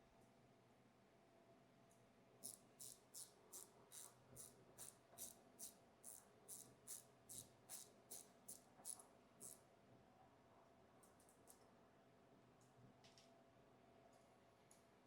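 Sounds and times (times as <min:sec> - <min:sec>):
ratchet wrench clicking: 0:02.4 - 0:09.6.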